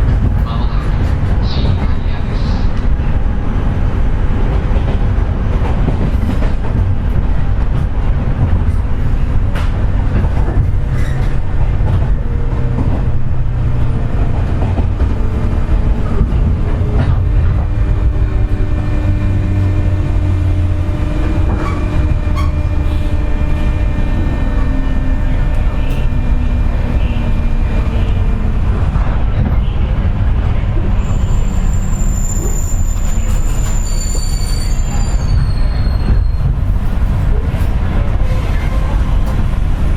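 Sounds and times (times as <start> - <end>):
rail joint clicks: 0.0 - 39.9
train wheels rumbling on rail: 0.0 - 39.9
steady whining tones: 10.4 - 31.9.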